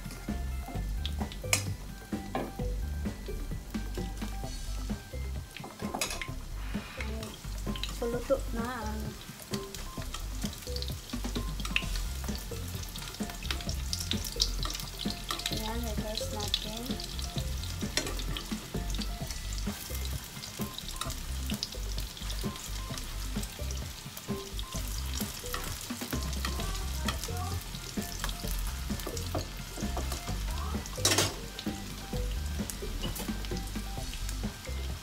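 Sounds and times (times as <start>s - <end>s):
battered slices sizzling in oil: 0.0s - 35.0s
metal tongs tapping a pan: 5.5s - 6.4s, 11.6s - 17.2s, 17.8s - 18.6s, 25.2s - 27.3s, 27.9s - 31.6s.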